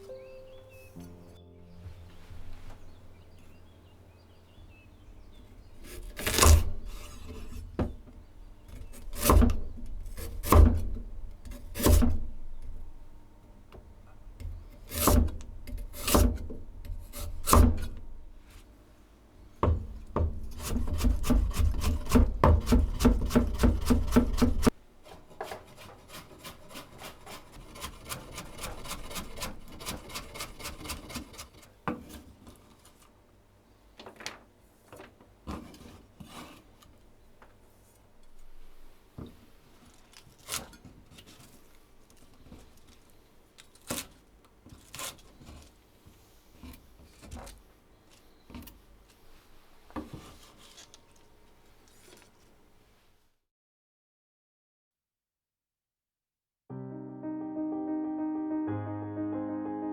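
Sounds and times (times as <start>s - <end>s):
knife chopping on wooden board: 5.8s - 8.0s, 8.7s - 12.5s, 14.4s - 18.1s, 19.6s - 24.7s.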